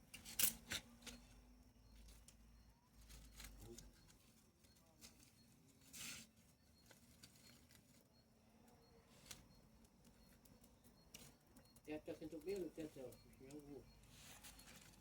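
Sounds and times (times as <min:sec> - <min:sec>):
bonfire crackling: 0:08.7 - 0:15.0.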